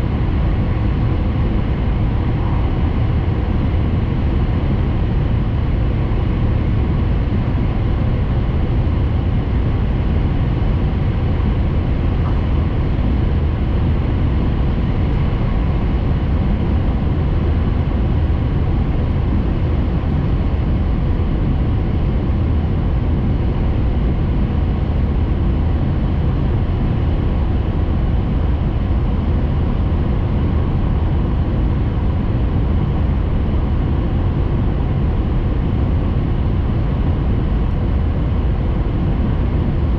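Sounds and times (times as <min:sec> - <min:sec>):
train interior rumble: 0:00.0 - 0:20.8.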